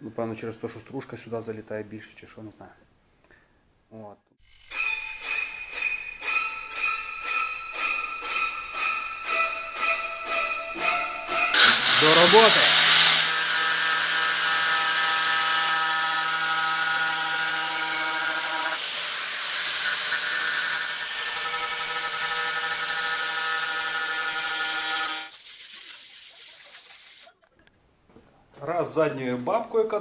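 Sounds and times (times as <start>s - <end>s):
power tool motor running: 11.5s - 25.3s.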